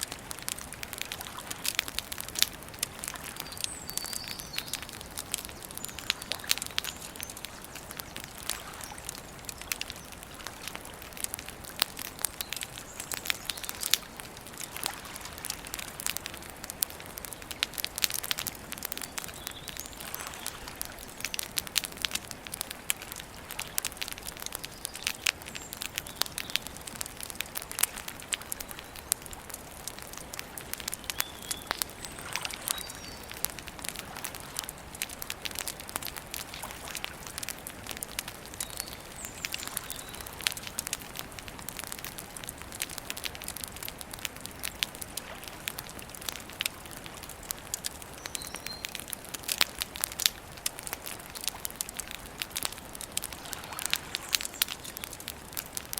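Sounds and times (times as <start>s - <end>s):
campfire crackling and popping: 0.0s - 55.9s
faint bird chirps: 3.4s - 10.2s, 31.0s - 33.3s, 48.2s - 49.0s.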